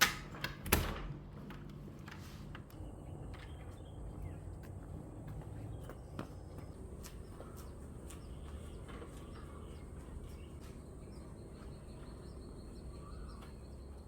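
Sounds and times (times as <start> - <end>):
bird chirps: 7.2 - 14.0.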